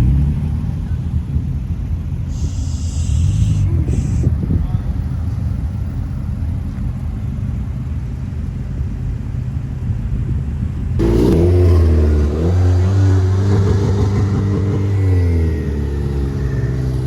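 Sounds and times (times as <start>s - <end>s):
car engine revving: 0.0s - 4.2s, 11.0s - 17.0s
car engines rumbling low: 0.0s - 17.0s.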